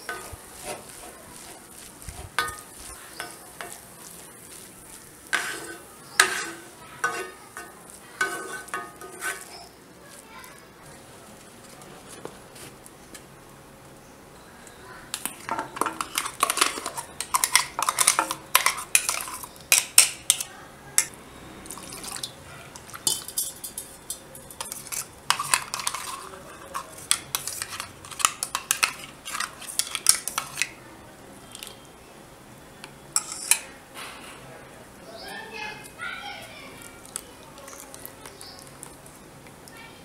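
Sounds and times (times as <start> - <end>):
spoon scraping steel jar: 0.0 - 4.1, 5.3 - 9.8, 15.2 - 20.5, 21.7 - 30.8, 33.2 - 33.7.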